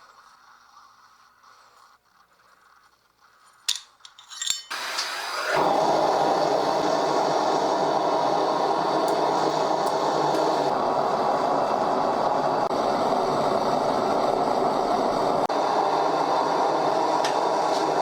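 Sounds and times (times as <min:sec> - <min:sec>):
gas burner roaring: 0:00.0 - 0:18.0
sharp metallic clinks: 0:03.7 - 0:05.1.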